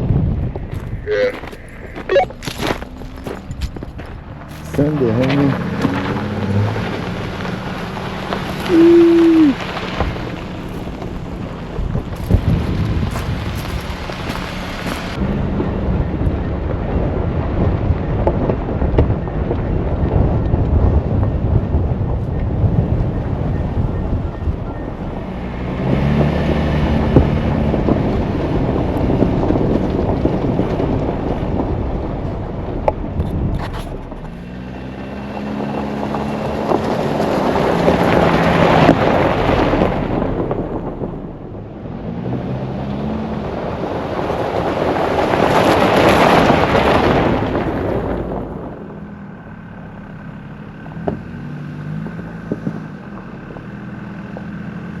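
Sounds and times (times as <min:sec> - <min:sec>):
rushing noise: 0:00.0 - 0:18.0
off-road vehicle engine revving: 0:00.0 - 0:55.0.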